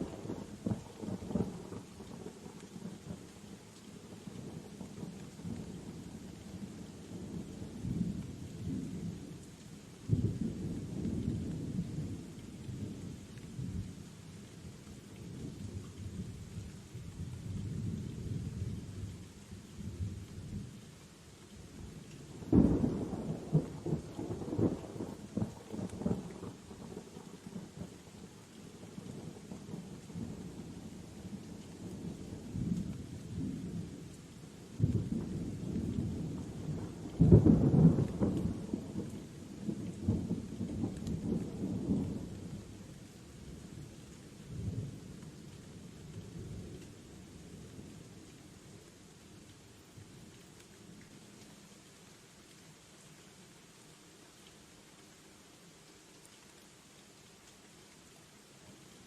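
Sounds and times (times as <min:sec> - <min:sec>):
crackling thunderclap: 0:00.0 - 0:03.2, 0:10.1 - 0:13.9, 0:22.3 - 0:27.9, 0:34.8 - 0:42.7, 0:44.5 - 0:46.9
steady rain: 0:00.0 - 0:59.0.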